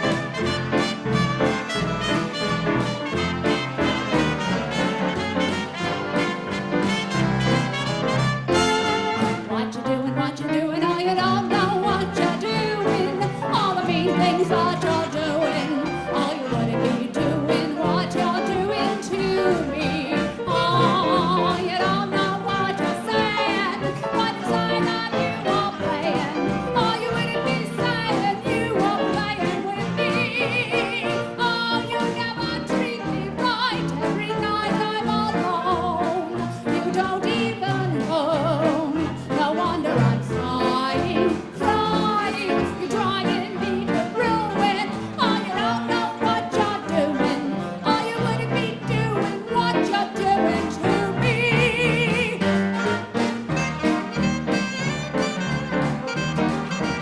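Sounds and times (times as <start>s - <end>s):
big band dance orchestra: 0.0s - 57.0s
woman singing with vibrato: 9.2s - 52.6s.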